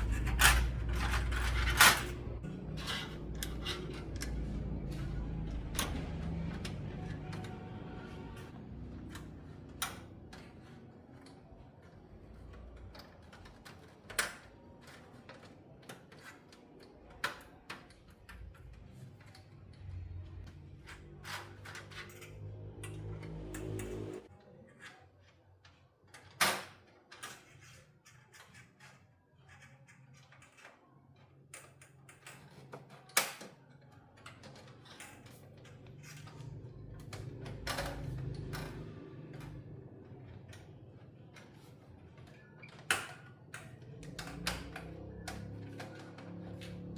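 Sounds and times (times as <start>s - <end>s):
small tools clicking and tapping: 0.0s - 7.7s, 8.4s - 46.9s
clicks and taps of hard parts: 8.8s - 24.2s.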